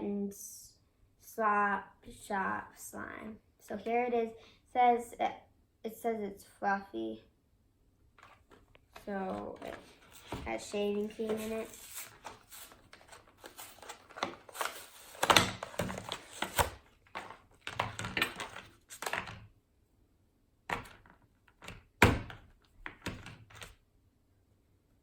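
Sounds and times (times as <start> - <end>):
plastic packaging rustling: 8.2 - 19.5.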